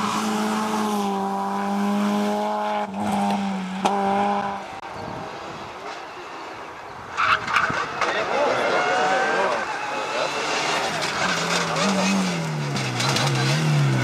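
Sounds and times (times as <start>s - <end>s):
rally car engine at high revs: 0.0s - 4.8s, 8.3s - 14.0s
rally car arriving: 0.0s - 14.0s.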